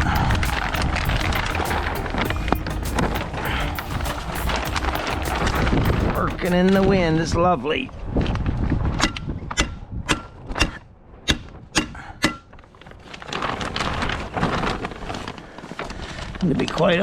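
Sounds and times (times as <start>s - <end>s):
wind noise: 0.0s - 11.7s.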